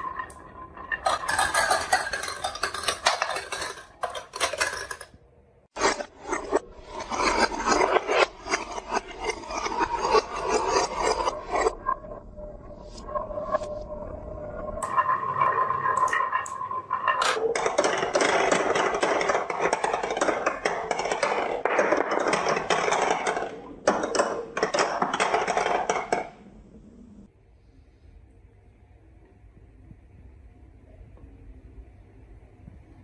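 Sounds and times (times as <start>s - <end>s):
marbles rolling down a marble run: 0.0s - 5.2s, 5.8s - 12.1s, 14.7s - 26.4s.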